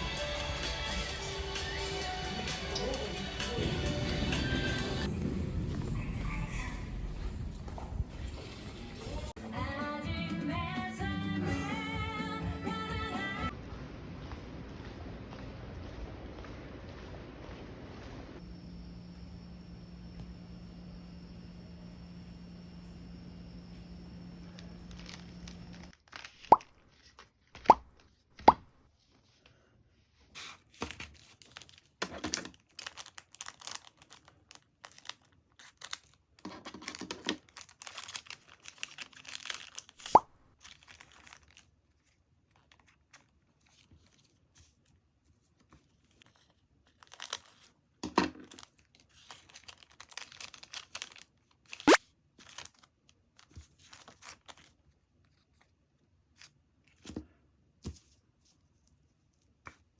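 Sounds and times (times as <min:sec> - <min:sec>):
plastic packaging crinkling: 0:24.5 - 0:28.1, 0:30.7 - 0:44.8, 0:45.8 - 0:54.8.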